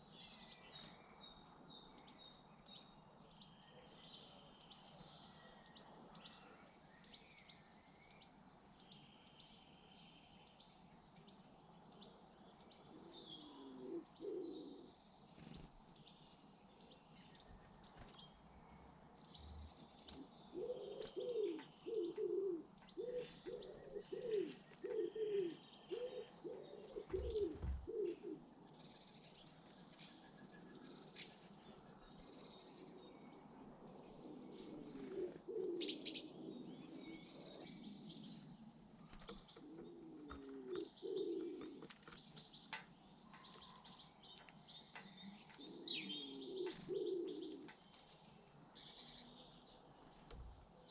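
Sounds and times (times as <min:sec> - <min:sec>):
small birds chirping: 0:00.0 - 0:50.9
pigeon cooing: 0:12.9 - 0:14.9, 0:20.5 - 0:28.5, 0:34.3 - 0:37.7, 0:39.4 - 0:42.0, 0:45.6 - 0:47.7.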